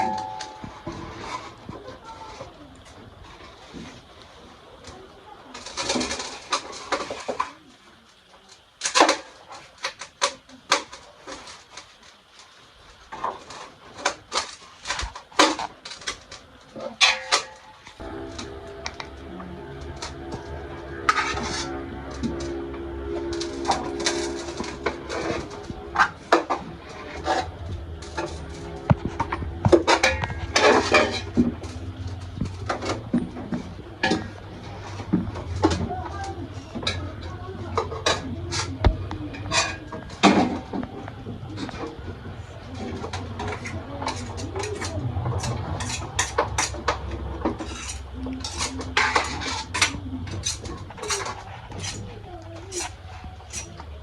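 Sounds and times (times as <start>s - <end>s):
dishes and cutlery clinking: 0.0s - 2.5s, 17.0s - 35.9s, 37.8s - 40.8s, 42.8s - 54.0s.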